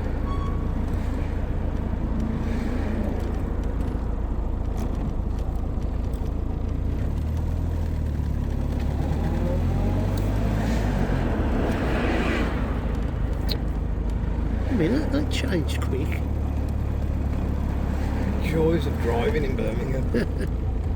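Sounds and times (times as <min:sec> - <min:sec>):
car engine drone: 0:00.0 - 0:20.9
road noise: 0:00.0 - 0:20.9.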